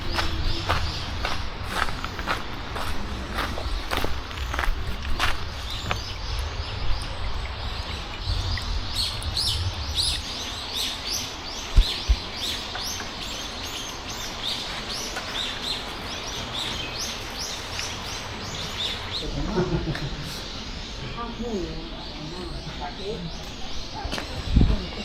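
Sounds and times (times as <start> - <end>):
low rumble: 0.0 - 13.0
small birds chirping: 0.0 - 25.0.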